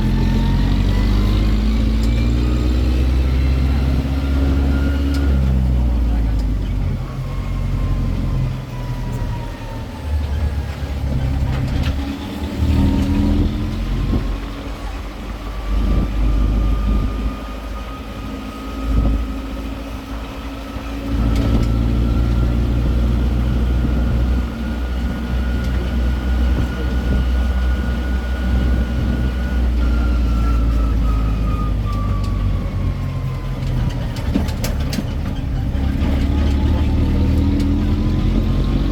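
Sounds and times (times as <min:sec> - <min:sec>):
road train engine running: 0:00.0 - 0:38.9.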